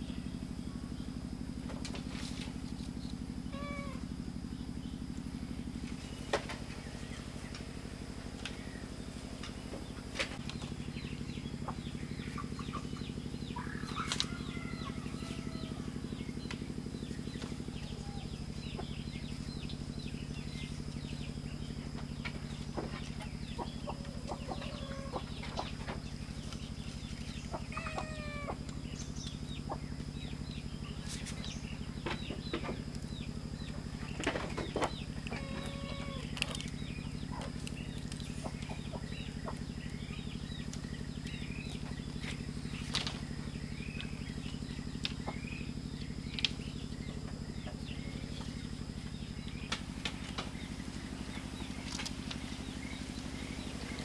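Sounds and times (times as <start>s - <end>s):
birds chirping: 0.0s - 54.0s
low steady hum: 0.0s - 54.0s.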